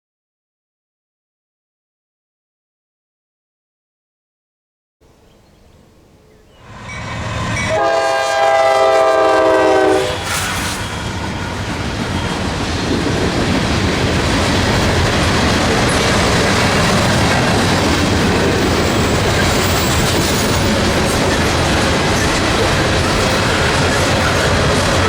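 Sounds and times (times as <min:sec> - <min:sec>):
train wheels rolling on rails: 0:06.4 - 0:25.0.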